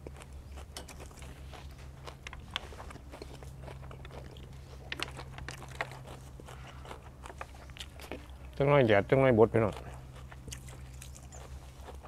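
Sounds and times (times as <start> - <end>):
person chewing: 0.0 - 8.6, 9.6 - 12.0
small clicks and crunches: 0.0 - 8.6
steady low hum: 0.0 - 12.0.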